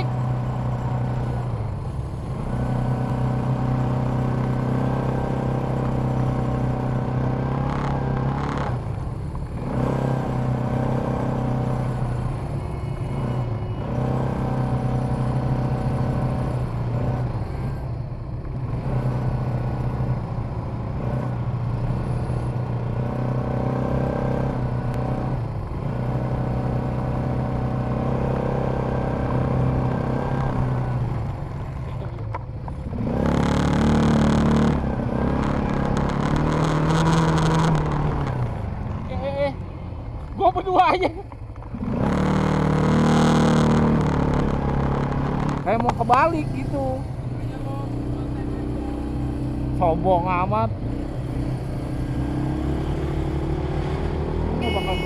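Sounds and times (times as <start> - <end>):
quad bike engine revving: 2.4 - 12.5, 20.9 - 39.6, 40.2 - 55.0.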